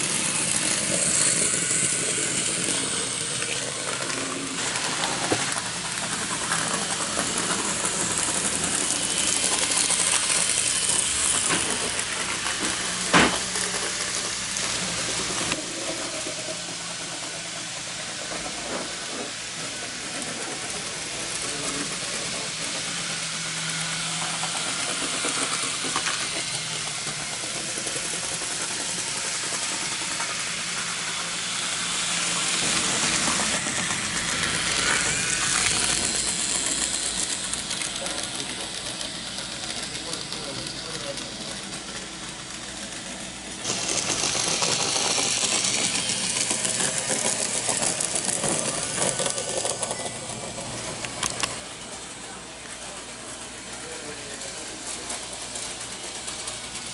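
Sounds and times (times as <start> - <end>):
model train rattling on track: 0.0 - 56.9
light clicks over rails: 50.8 - 51.6.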